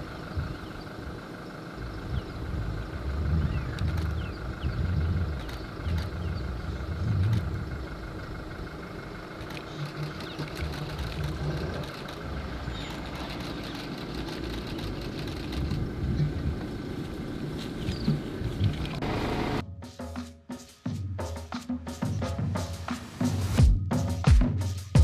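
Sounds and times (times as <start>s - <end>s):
vehicle engine idling: 0.0s - 19.6s.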